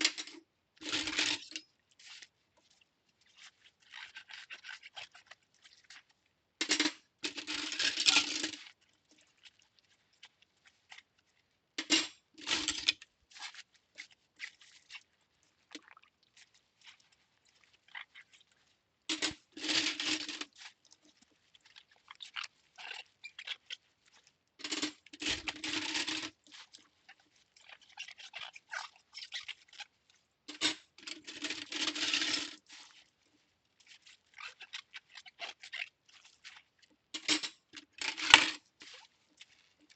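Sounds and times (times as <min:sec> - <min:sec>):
cutlery scraping and clinking: 0:00.0 - 0:01.6, 0:06.6 - 0:08.6, 0:19.1 - 0:20.5, 0:37.2 - 0:38.6.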